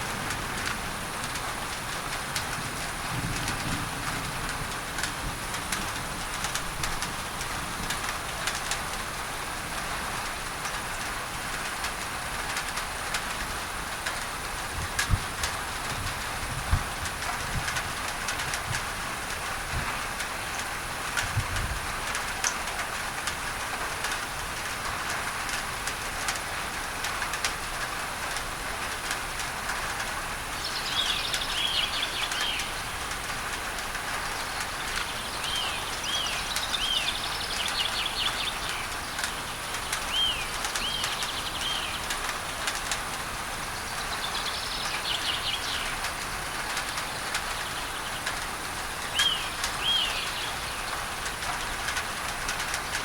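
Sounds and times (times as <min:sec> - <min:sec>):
rain on a tin roof: 0:00.0 - 0:53.0
bird chirping: 0:30.6 - 0:32.9, 0:34.4 - 0:42.1, 0:43.9 - 0:46.0, 0:49.1 - 0:51.4.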